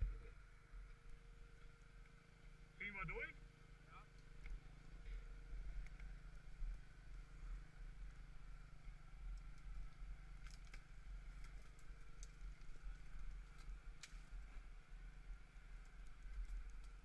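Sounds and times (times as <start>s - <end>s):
muffled engine idling: 0.0s - 17.0s
faint clicks: 4.1s - 6.8s.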